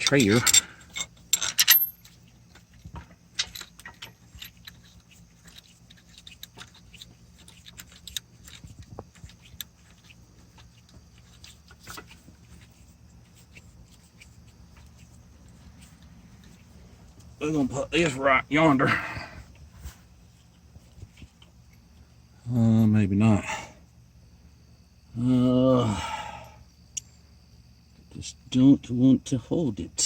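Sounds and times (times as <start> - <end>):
metal clatter: 0.0 - 10.0
metal clinks and taps: 0.0 - 12.5, 26.9 - 27.2.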